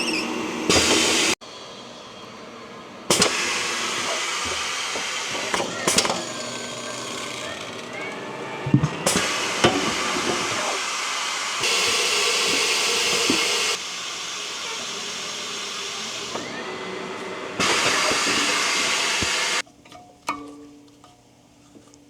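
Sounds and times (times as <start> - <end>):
compressed air hissing: 0.0 - 1.4, 3.1 - 7.6, 8.7 - 19.6.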